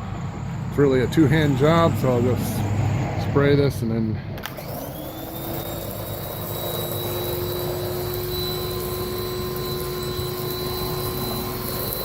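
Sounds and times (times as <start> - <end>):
pressure washer motor hum: 0.0 - 12.0
water spray hissing: 5.1 - 12.0.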